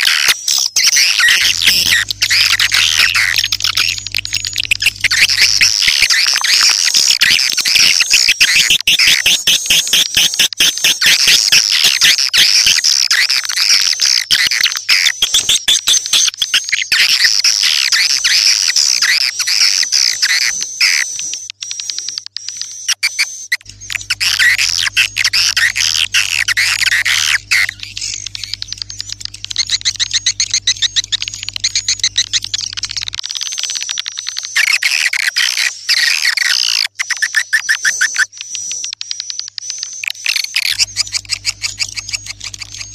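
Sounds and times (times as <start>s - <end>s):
swiftlets twittering and chirping: 0.0s - 42.9s
low steady hum: 1.2s - 6.2s, 23.6s - 33.2s, 40.8s - 42.9s.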